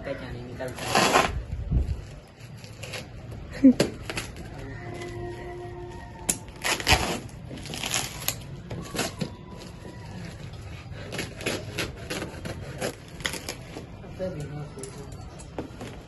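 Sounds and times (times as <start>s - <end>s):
packaging rustling and tearing: 6.0s - 14.0s.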